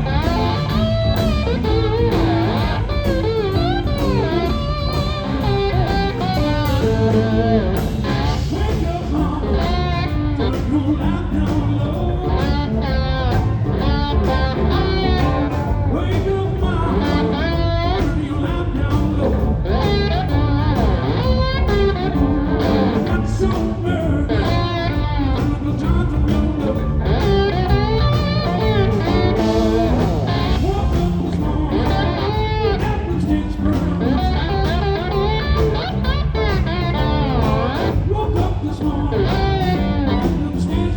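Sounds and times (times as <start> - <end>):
blues-rock band playing: 0.0 - 40.9
electric guitar lead: 0.0 - 40.9.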